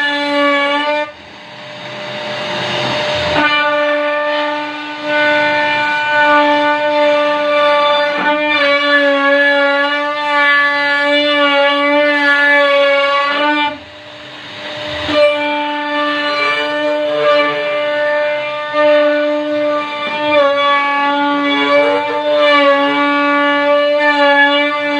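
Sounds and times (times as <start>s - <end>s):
cnc router spindle whining: 0.0s - 24.9s.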